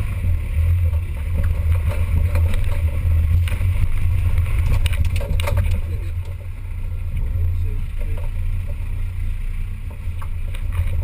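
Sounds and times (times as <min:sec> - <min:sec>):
engine low rumble: 0:00.0 - 0:11.0
knocks and rattles: 0:00.8 - 0:06.5.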